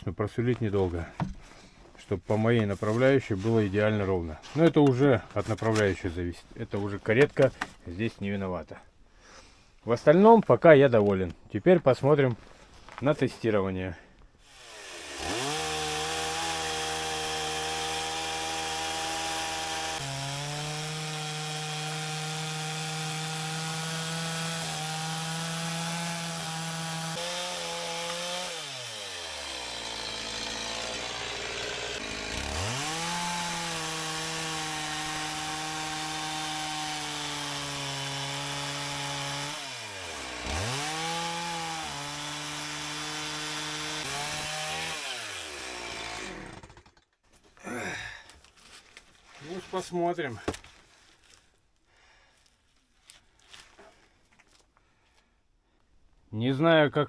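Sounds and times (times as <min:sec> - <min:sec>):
chainsaw ripping a log: 0:14.5 - 0:49.6.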